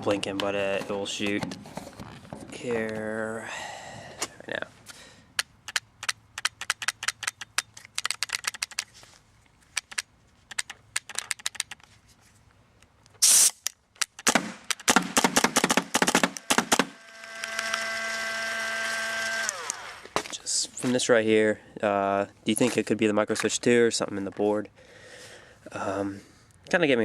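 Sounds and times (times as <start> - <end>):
sharp clicks: 5.4 - 8.9, 9.7 - 11.9, 13.0 - 18.0, 18.8 - 19.9
paintball marker shots: 13.2 - 17.0.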